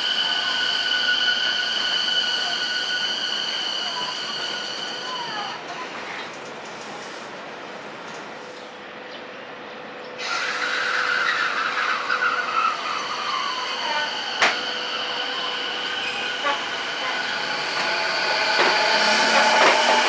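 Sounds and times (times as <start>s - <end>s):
steady high tones: 0.0s - 6.0s, 13.1s - 20.0s
electric train inverter whine: 8.7s - 20.0s.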